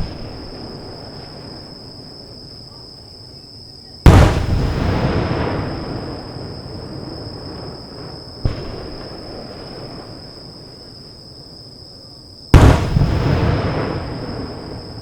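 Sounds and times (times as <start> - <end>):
firework shells bursting: 4.1 - 5.0, 12.6 - 14.4
rumble of firework burst: 4.1 - 10.3, 12.5 - 15.0.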